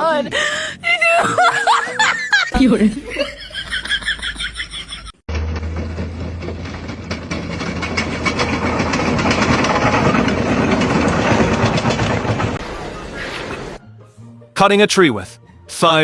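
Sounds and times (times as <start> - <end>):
heavy engine humming and rattling: 5.3 - 13.8.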